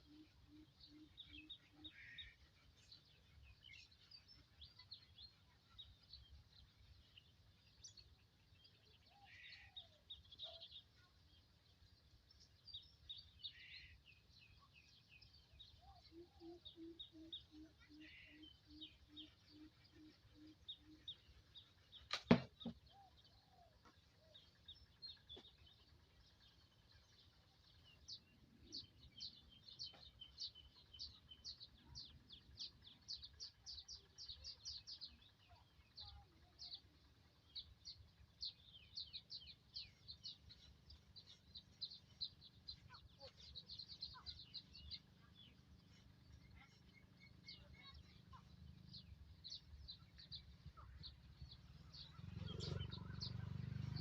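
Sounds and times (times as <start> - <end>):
birds chirping: 0.0 - 54.0
sharp knock: 22.1 - 22.8.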